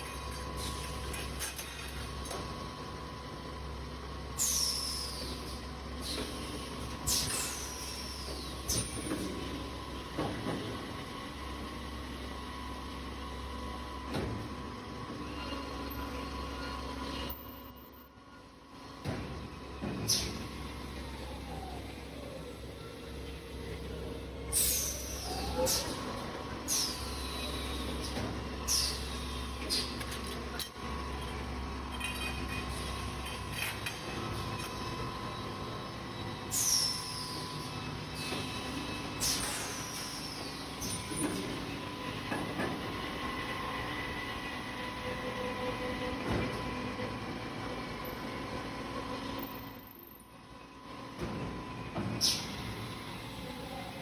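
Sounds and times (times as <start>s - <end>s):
pneumatic air hisses: 4.4s - 5.4s, 6.0s - 8.9s, 24.5s - 26.0s, 26.7s - 27.9s, 28.7s - 30.0s, 36.5s - 37.3s, 39.2s - 40.9s, 52.2s - 52.9s.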